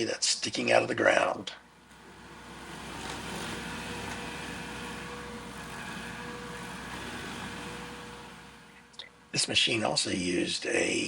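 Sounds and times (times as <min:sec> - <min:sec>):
thin steady whine: 0:01.6 - 0:11.0
stump grinder engine running: 0:01.8 - 0:09.4.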